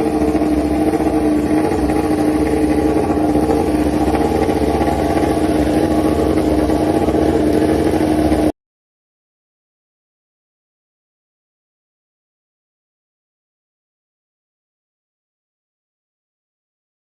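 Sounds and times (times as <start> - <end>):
racing motorcycle engine running: 0.0 - 8.5.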